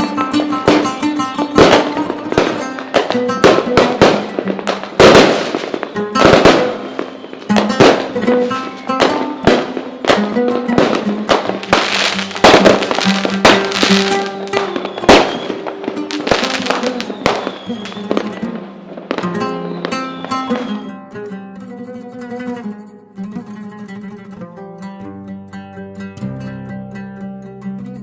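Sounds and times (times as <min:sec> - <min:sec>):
big firework bangs: 0:00.0 - 0:20.9
fireworks bursting and crackling: 0:00.0 - 0:21.0
music with sustained notes: 0:00.0 - 0:28.0.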